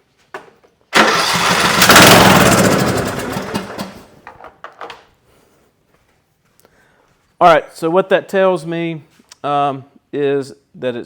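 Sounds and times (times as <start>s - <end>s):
mower engine starting and dying: 0.9s - 4.2s.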